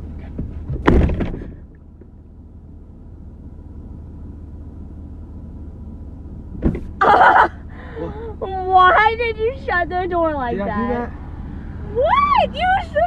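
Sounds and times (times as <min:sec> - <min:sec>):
car engine humming: 0:00.0 - 0:13.0
car door slamming: 0:00.4 - 0:01.6, 0:06.5 - 0:07.2.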